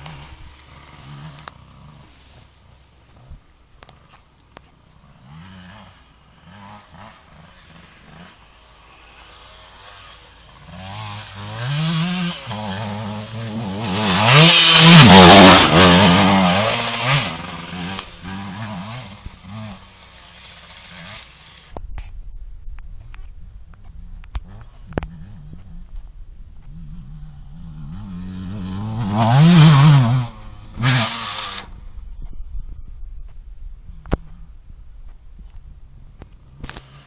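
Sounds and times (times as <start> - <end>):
motocross bike revving past: 0.0 - 2.4, 5.0 - 21.7, 24.4 - 25.9, 26.7 - 31.9.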